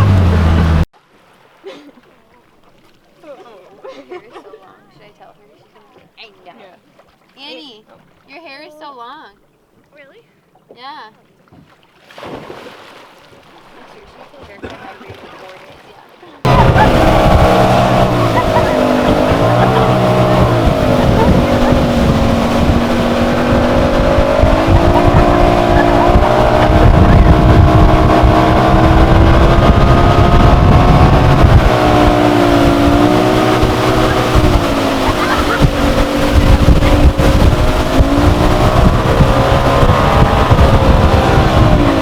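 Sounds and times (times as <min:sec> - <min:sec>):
motorboat engine running: 0:00.0 - 0:00.9, 0:16.5 - 0:42.0.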